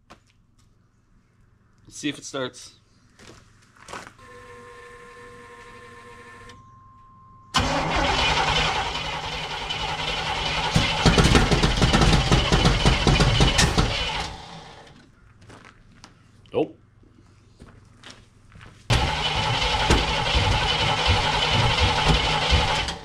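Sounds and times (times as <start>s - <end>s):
starter cranking engine: 7.6s - 14.9s, 18.9s - 23.0s.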